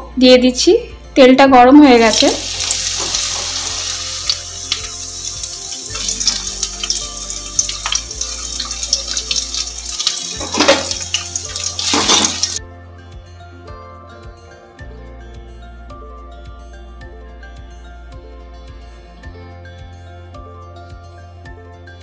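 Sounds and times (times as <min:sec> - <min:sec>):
soft background music: 0:00.0 - 0:22.0
vegetables sizzling in hot oil: 0:02.1 - 0:12.6.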